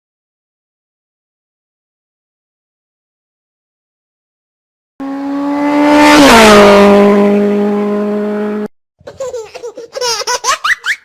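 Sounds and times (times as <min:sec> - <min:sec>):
vehicle engine passing by: 0:05.0 - 0:08.7.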